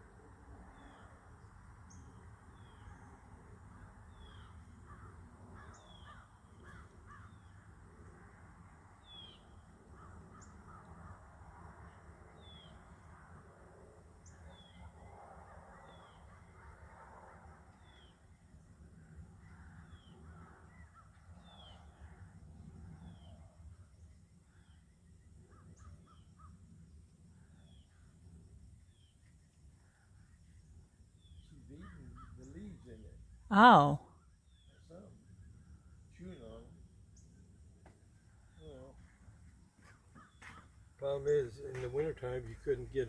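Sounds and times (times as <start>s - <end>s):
bird calls: 4.1s - 7.6s, 31.2s - 32.8s, 39.8s - 42.5s.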